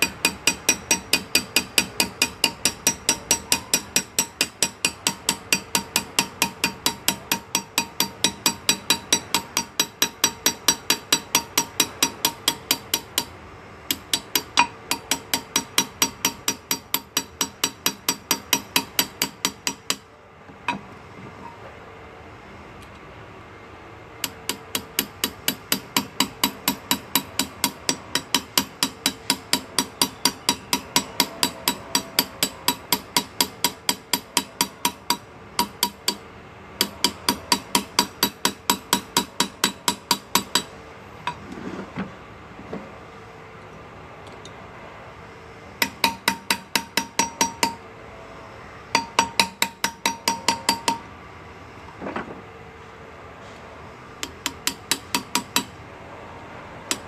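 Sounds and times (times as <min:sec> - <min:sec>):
hammer tapping chisel into metal: 0:00.0 - 0:13.3, 0:13.9 - 0:20.0, 0:24.2 - 0:36.2, 0:36.8 - 0:41.4, 0:45.8 - 0:47.8, 0:49.0 - 0:51.1, 0:54.2 - 0:55.7.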